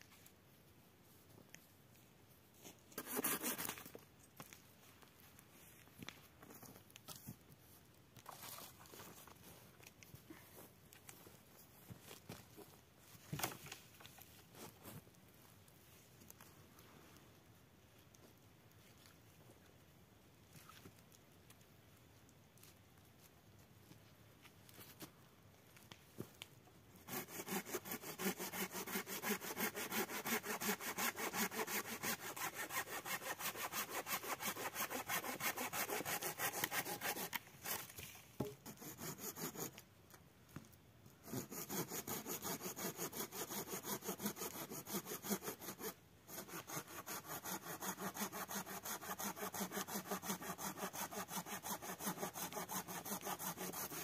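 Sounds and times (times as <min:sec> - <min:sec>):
hand saw cutting wood: 0:03.0 - 0:03.9, 0:27.0 - 0:37.9, 0:38.6 - 0:39.8, 0:41.2 - 0:54.0.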